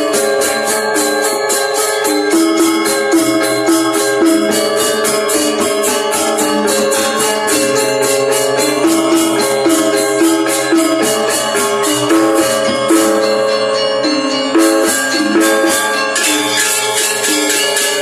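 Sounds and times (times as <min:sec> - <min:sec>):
gamelan music: 0:00.0 - 0:18.0.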